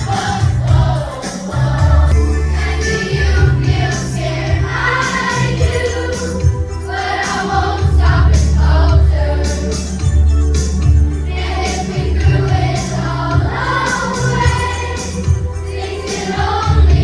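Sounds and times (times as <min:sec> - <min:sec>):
children's choir singing: 0:00.0 - 0:17.0
instrumental accompaniment with bass: 0:00.0 - 0:17.0.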